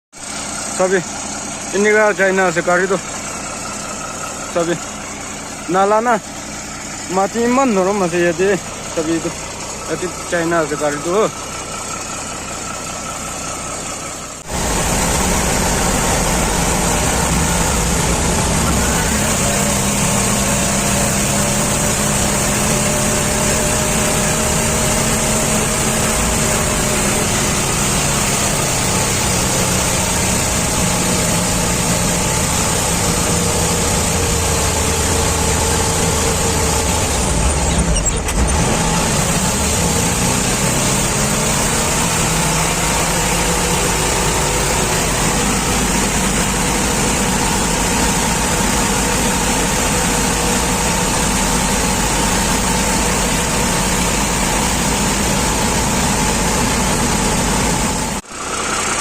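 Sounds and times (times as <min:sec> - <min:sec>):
truck engine running: 0:00.2 - 0:59.0.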